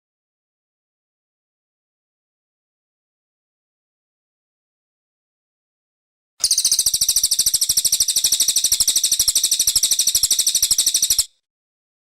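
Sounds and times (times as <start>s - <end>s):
bird song rapid trill: 6.4s - 11.4s.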